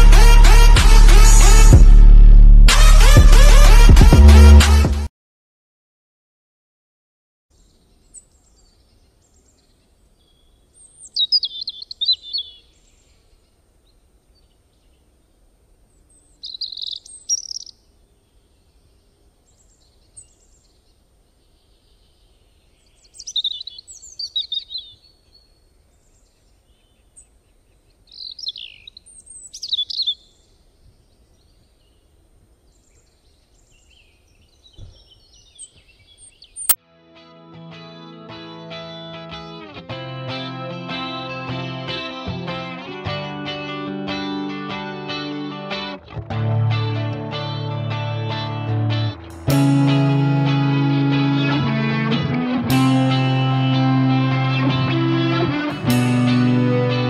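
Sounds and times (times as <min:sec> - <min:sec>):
songbird chirping: 0:07.5 - 0:36.8.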